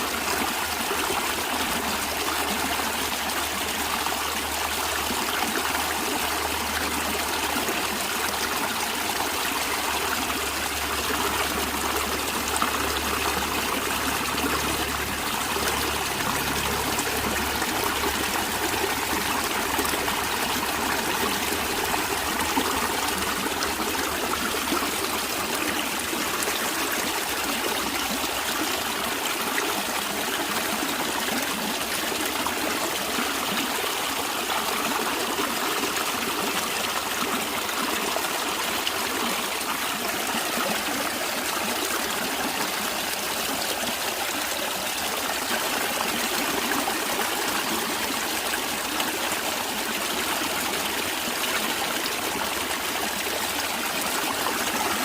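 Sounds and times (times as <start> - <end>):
stream of water running: 0.0 - 55.0.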